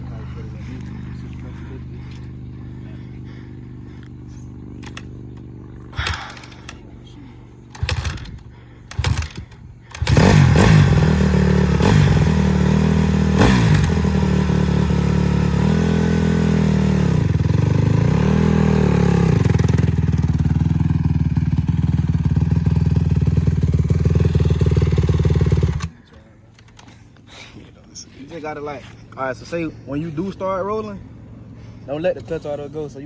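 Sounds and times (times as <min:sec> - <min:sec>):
dirt bike engine running: 0:00.0 - 0:26.1.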